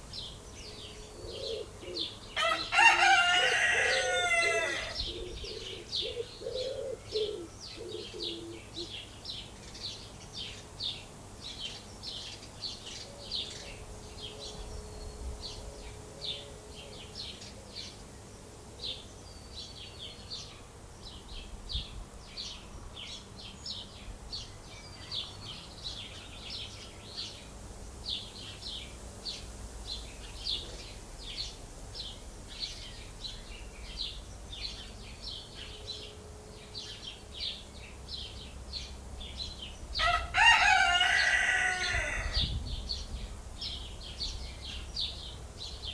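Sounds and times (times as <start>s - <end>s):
chicken call: 2.4s - 5.0s
small birds chirping: 18.8s - 45.9s.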